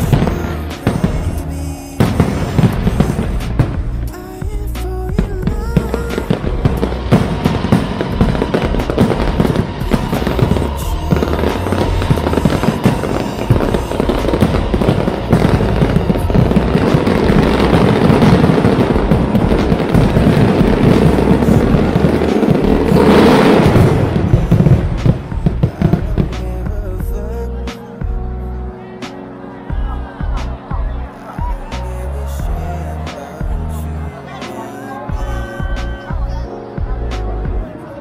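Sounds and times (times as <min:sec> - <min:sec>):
fireworks bangs and crackling: 0:00.0 - 0:27.2
music playing: 0:00.0 - 0:38.0.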